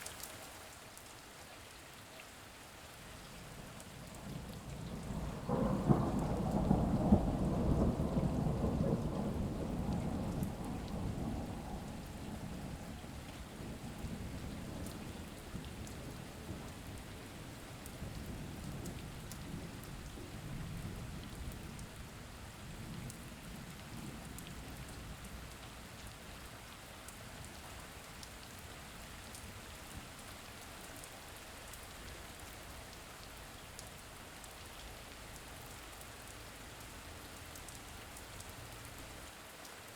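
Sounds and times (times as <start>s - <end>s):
steady rain falling: 0.0s - 39.9s
thunder rumbling: 4.3s - 17.1s.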